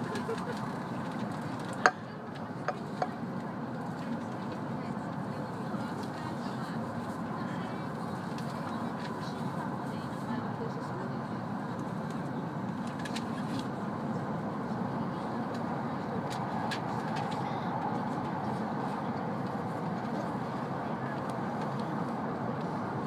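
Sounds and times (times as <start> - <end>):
train cabin rumble: 0.0 - 10.0.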